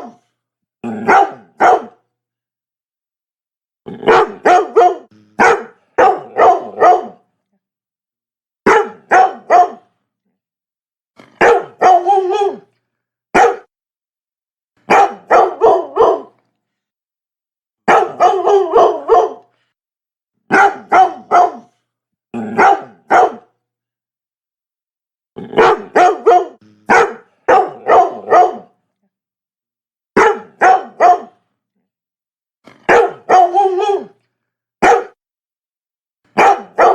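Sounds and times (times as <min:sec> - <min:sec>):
dog barking: 0:00.0 - 0:00.2, 0:01.0 - 0:02.0, 0:04.0 - 0:07.2, 0:08.7 - 0:09.9, 0:11.2 - 0:12.7, 0:13.3 - 0:13.7, 0:14.8 - 0:16.4, 0:17.8 - 0:19.5, 0:20.5 - 0:21.8, 0:22.5 - 0:23.6, 0:25.5 - 0:28.8, 0:30.2 - 0:31.4, 0:32.7 - 0:34.2, 0:34.8 - 0:35.2, 0:36.3 - 0:36.9.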